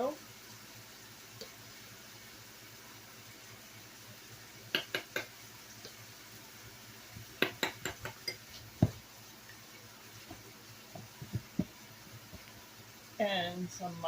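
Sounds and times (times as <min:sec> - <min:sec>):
utensil clinking against dish: 0:07.4 - 0:08.5.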